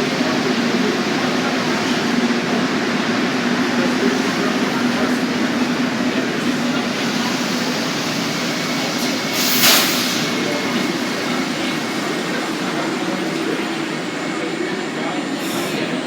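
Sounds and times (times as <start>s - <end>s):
train rumbling through station: 0.0s - 16.0s
short loud hiss: 9.4s - 10.3s.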